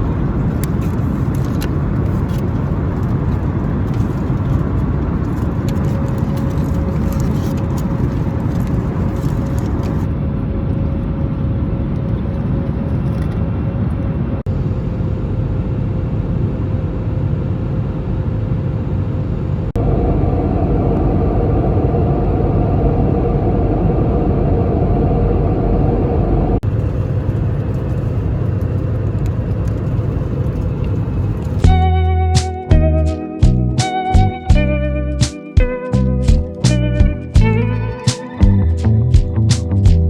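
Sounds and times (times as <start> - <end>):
road vehicle rumbling: 0.0 - 10.1, 35.9 - 40.0.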